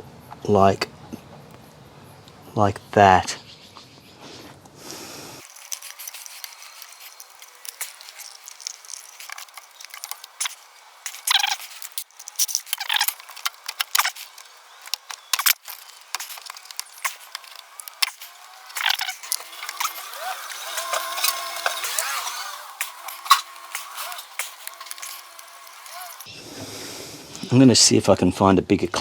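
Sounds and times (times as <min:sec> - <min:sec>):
hose clamp clicking and scraping: 0:05.4 - 0:26.3
sharp metallic clatters: 0:05.4 - 0:26.3.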